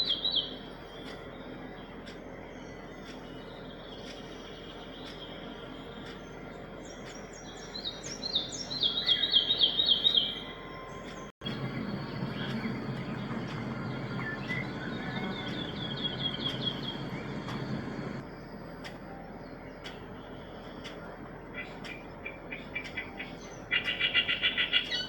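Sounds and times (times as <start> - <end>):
low rumble: 11.4 - 22.5.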